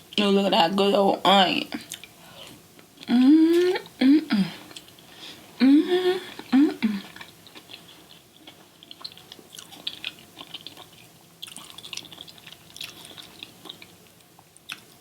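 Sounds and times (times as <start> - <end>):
person chewing food: 1.8 - 2.6, 6.3 - 15.0.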